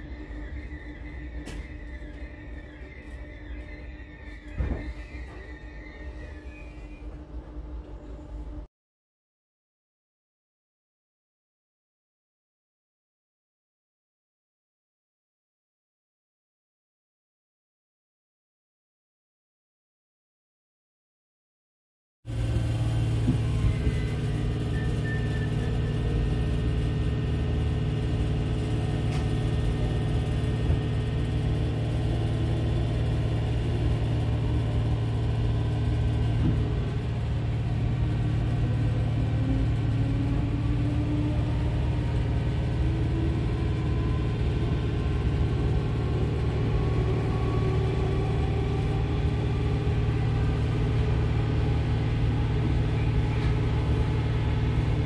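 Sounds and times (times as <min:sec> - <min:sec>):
motor whine rising: 0:00.0 - 0:07.4, 0:22.3 - 0:55.0
train low rumble: 0:00.0 - 0:08.7, 0:22.3 - 0:55.0.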